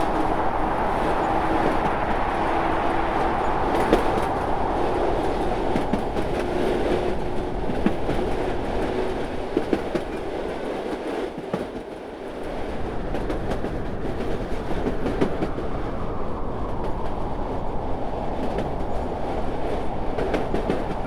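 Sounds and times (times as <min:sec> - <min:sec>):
train rumbling on rails: 0:00.0 - 0:21.0.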